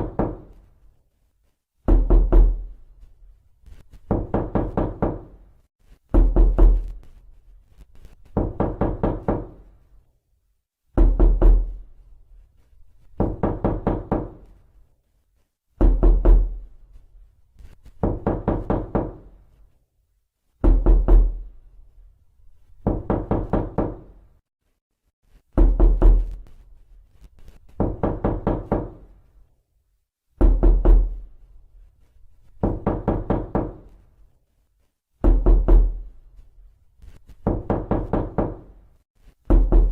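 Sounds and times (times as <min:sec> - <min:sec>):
knocking on a door: 0:00.0 - 0:00.6, 0:01.8 - 0:02.8, 0:04.0 - 0:05.4, 0:06.1 - 0:07.0, 0:08.3 - 0:09.6, 0:10.9 - 0:11.8, 0:13.2 - 0:14.5, 0:15.8 - 0:16.6, 0:18.0 - 0:19.4, 0:20.6 - 0:21.4, 0:22.8 - 0:24.2, 0:25.6 - 0:26.4, 0:27.7 - 0:29.1, 0:30.4 - 0:31.2, 0:32.6 - 0:34.0, 0:35.2 - 0:36.0, 0:37.4 - 0:38.8, 0:39.5 - 0:39.9.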